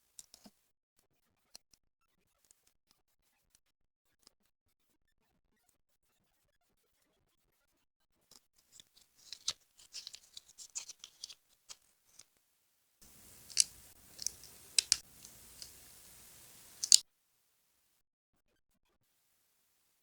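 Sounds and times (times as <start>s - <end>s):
scissors snipping paper: 0.2s - 0.5s, 8.8s - 11.4s, 13.0s - 17.0s
faint hiss: 8.8s - 11.4s, 13.0s - 17.0s
paper rustling: 8.8s - 11.4s, 13.0s - 17.0s.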